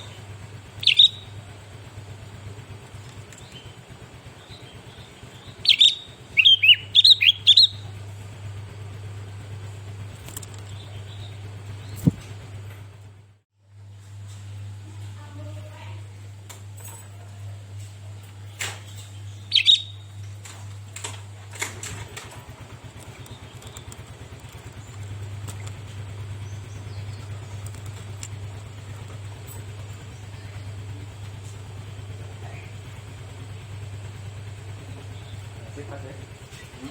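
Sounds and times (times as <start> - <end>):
bulbul chirps: 0.0 - 8.2, 10.3 - 12.5, 19.2 - 20.2, 22.9 - 35.6
steady low hum: 0.0 - 36.9.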